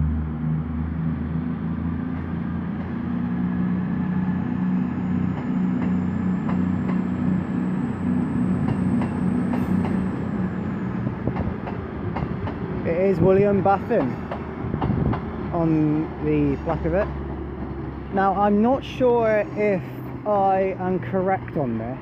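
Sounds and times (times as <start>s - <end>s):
train diesel engines droning: 0.0s - 22.0s
wheels clicking over rail joints: 11.0s - 19.4s.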